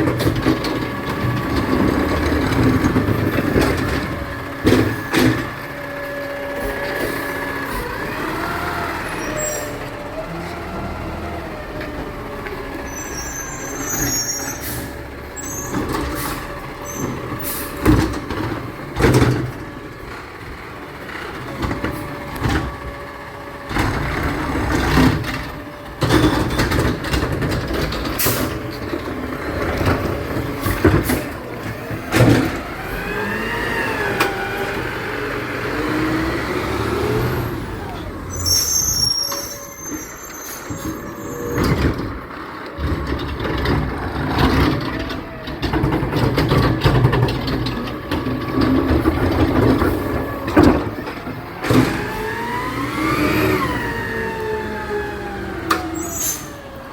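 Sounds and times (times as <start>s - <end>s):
garbage truck engine running: 0.0s - 56.9s
high squeals: 12.8s - 15.9s, 38.3s - 41.9s, 55.8s - 56.6s.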